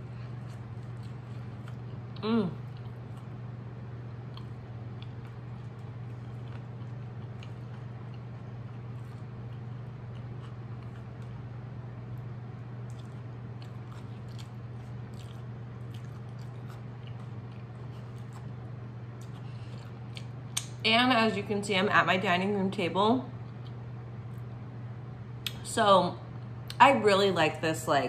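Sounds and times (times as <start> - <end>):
person chewing: 0.0 - 3.5, 4.1 - 11.6, 12.2 - 20.8
steady low hum: 0.0 - 28.0.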